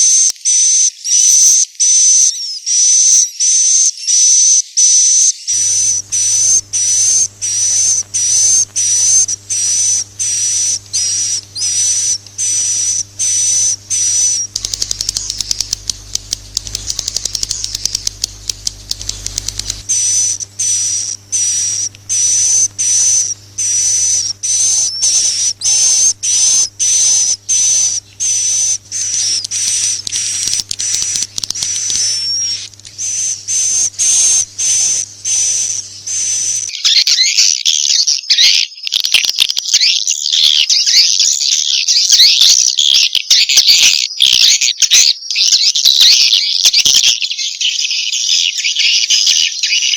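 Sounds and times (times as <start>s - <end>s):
faint steady hum: 5.5s - 36.7s
rapid clicking trill: 5.6s - 36.7s.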